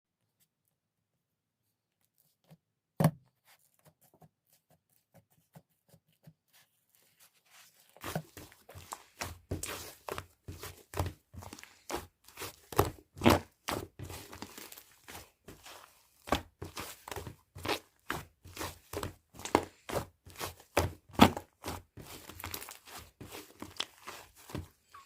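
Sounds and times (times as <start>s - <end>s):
slime squishing with sticky pops: 8.0s - 25.0s.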